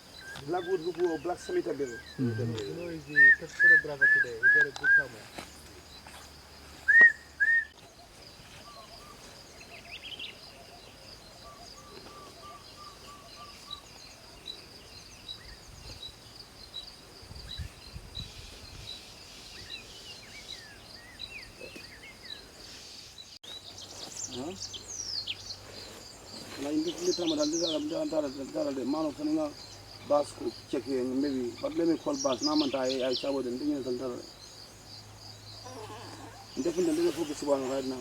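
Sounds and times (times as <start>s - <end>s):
bird chirps: 0.0s - 38.0s
loud whistled bird notes: 0.2s - 5.3s, 6.9s - 7.8s.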